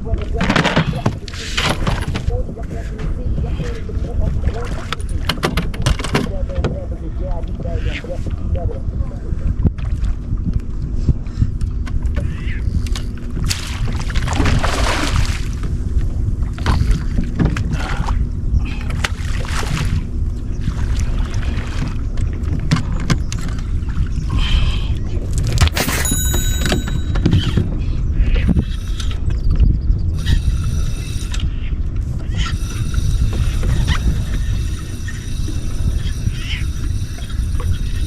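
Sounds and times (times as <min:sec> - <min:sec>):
boat engine low rumble: 0:00.0 - 0:38.0
short high-pitched tones: 0:25.8 - 0:27.5.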